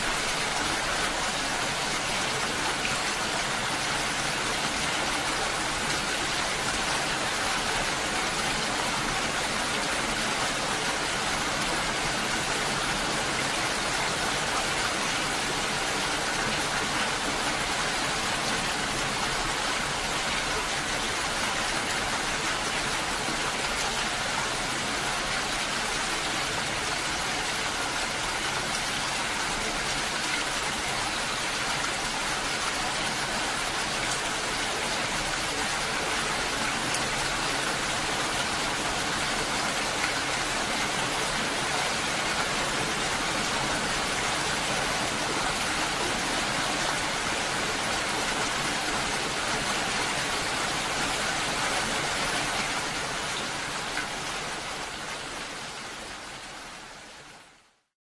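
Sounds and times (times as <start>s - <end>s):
steady rain hiss: 0.0s - 57.9s.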